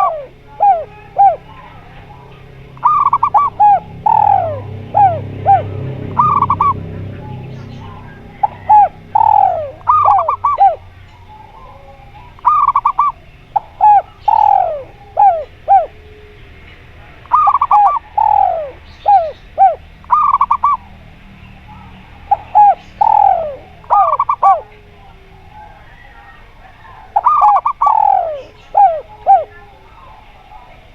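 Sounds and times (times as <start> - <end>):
doves cooing: 0.0 - 30.9.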